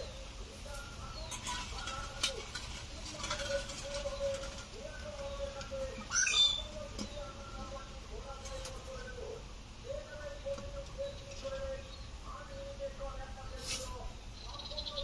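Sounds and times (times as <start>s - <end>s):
high falling bird call: 3.4s - 7.7s.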